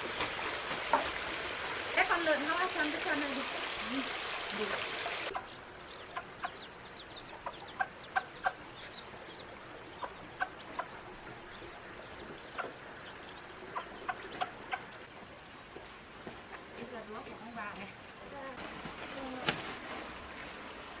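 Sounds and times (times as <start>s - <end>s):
chickens clucking: 2.0s - 15.2s.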